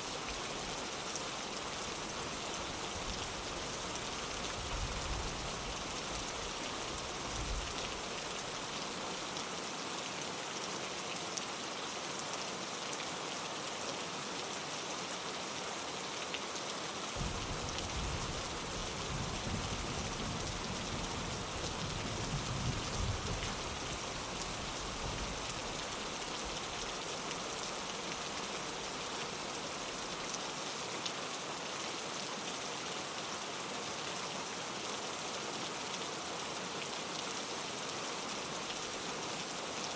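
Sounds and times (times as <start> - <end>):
rain on a window: 0.0 - 39.9
distant thunder rumble: 17.2 - 20.9.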